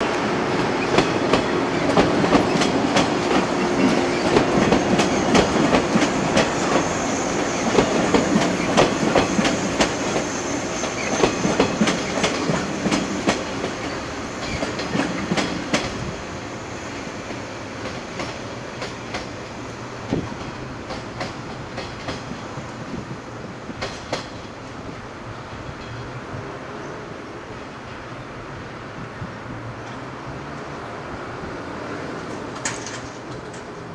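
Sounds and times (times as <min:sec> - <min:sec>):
train wheels clattering over rail joints: 0:00.2 - 0:24.6, 0:32.2 - 0:33.9.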